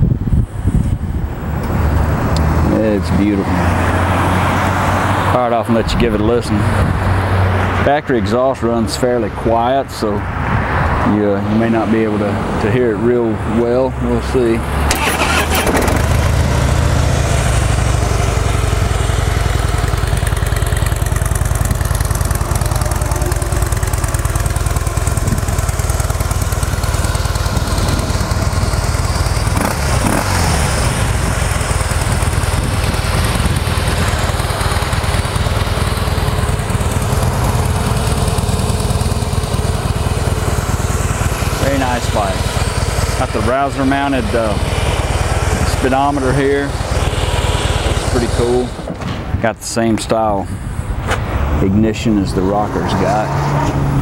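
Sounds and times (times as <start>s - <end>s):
motorcycle engine starting: 14.6s - 49.4s
motorcycle engine idling: 15.3s - 49.0s.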